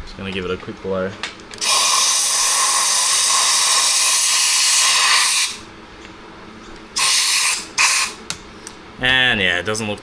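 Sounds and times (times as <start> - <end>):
compressed air hissing: 1.6 - 5.7, 7.0 - 8.2.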